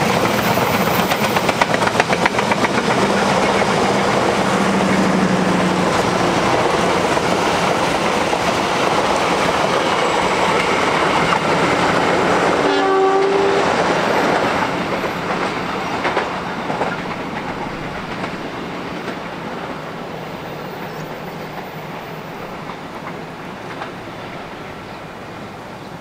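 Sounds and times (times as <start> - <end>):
train wheel and rail noise: 0.0 - 26.0
train horn: 12.4 - 14.7.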